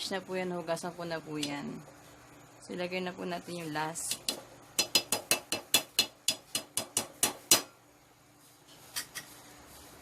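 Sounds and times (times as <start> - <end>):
utensils tapping on cookware: 8.9 - 9.4.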